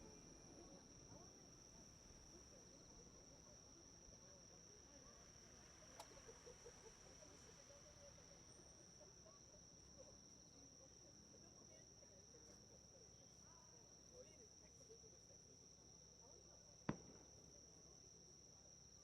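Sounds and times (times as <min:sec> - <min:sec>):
faint distant voices: 0:00.0 - 0:19.0
insects chirring: 0:00.0 - 0:19.0
faint click: 0:05.9 - 0:06.6.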